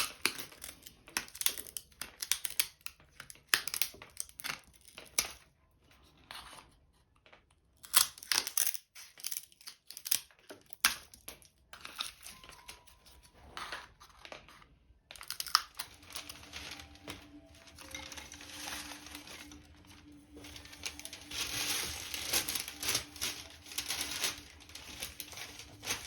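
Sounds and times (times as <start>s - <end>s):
dry material rustling and crinkling: 11.8s - 26.0s.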